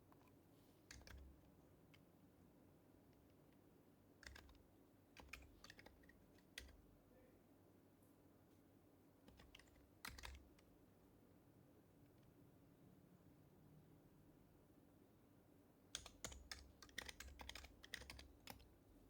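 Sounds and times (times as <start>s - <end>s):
soft keyboard keystrokes: 0.0s - 2.1s, 3.1s - 6.9s, 9.3s - 10.7s, 15.9s - 18.8s.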